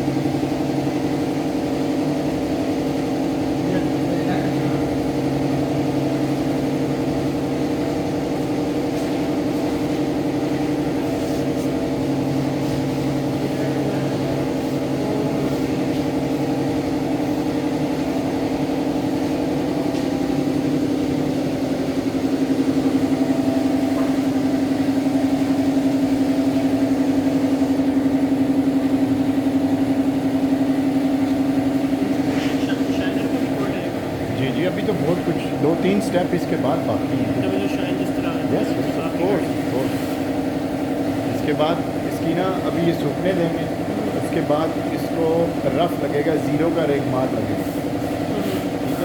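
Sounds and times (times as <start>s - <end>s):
machine motor humming: 0.0s - 49.0s.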